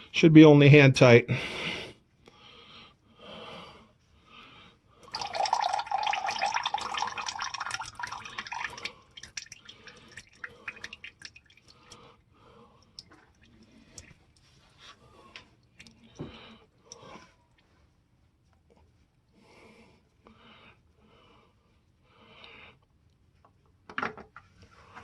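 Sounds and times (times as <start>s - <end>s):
oil dripping: 5.0s - 14.6s
oil pouring into drain pan: 5.1s - 12.0s.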